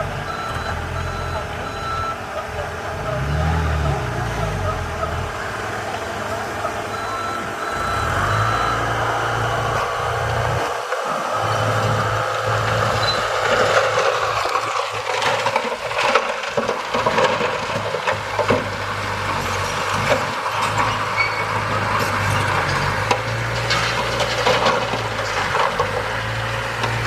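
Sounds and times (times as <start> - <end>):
heavy machinery engine hum: 0.0 - 27.0
clattering soil and stones: 10.8 - 27.0.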